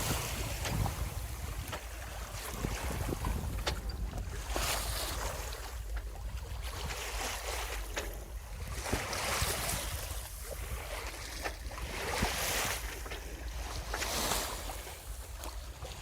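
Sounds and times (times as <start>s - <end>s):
wind buffeting microphone: 0.0s - 7.6s, 8.3s - 12.9s
water washing along hull: 0.0s - 16.0s.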